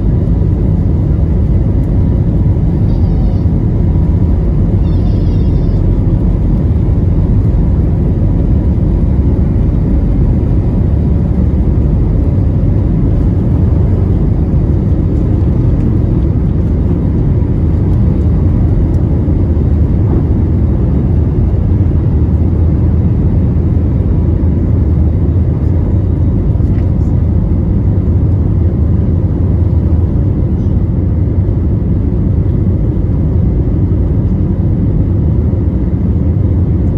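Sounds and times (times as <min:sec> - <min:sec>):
airplane cabin engine rumble: 0:00.0 - 0:36.9.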